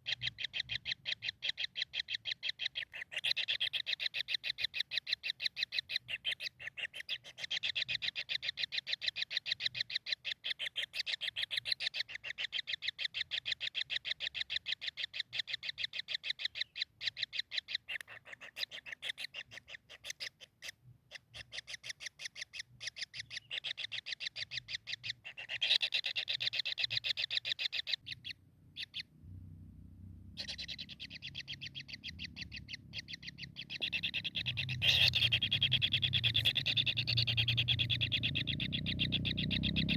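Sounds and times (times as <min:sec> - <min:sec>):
low rumble: 0:29.1 - 0:30.4
kingfisher chattering call: 0:30.4 - 0:39.9.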